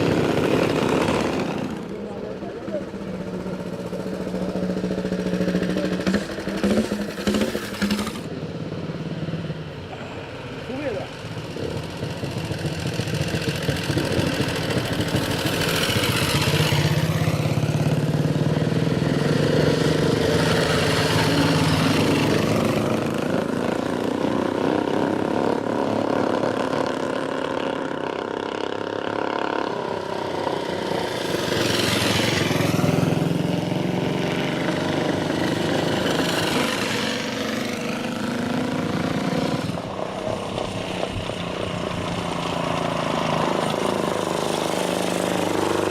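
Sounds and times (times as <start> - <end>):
motorcycle engines running: 0.0 - 45.9
motorcycles passing close by: 0.0 - 45.9.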